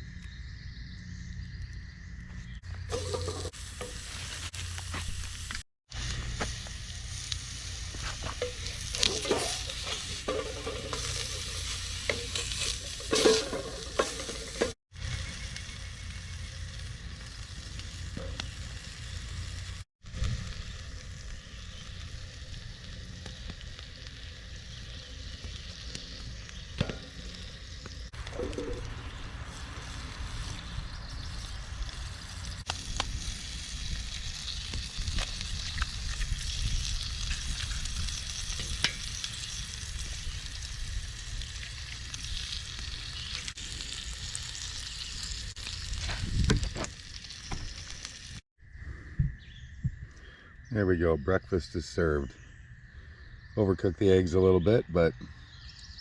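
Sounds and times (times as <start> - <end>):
food sizzling in a pan: 2.8 - 48.4
utensil scraping and tapping pan: 8.4 - 14.8.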